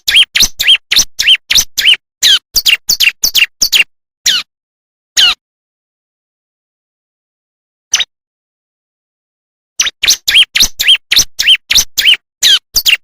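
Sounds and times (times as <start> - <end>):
bird sharp chirps: 0.0 - 4.5, 7.9 - 8.1, 9.8 - 13.0.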